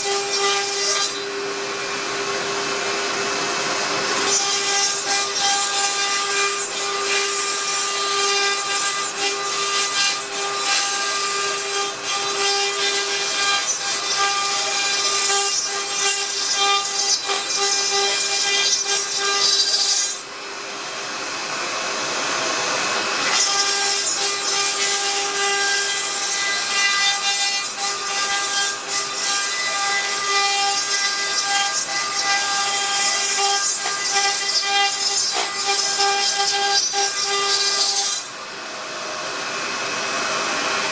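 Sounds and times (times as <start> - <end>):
router spindle whining: 29.8 - 40.9.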